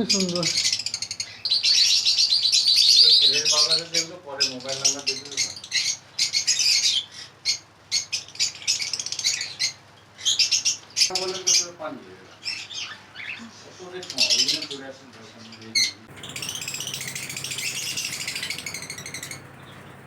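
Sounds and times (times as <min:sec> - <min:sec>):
lovebirds chirping: 0:16.1 - 0:20.0.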